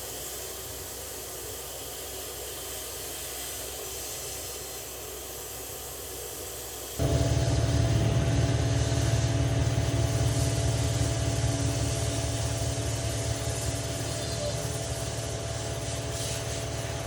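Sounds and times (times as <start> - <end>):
faint steady whine: 0.0 - 17.0
machine motor humming: 7.0 - 17.0.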